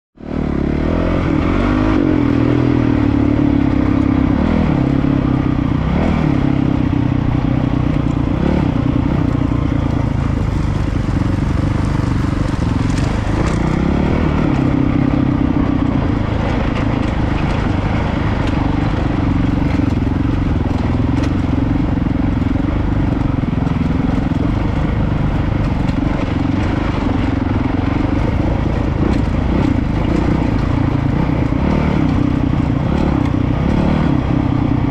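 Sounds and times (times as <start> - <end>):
motorcycle engine at low revs: 0.2 - 34.9
clicks and clatter: 9.3 - 13.9, 25.4 - 27.4.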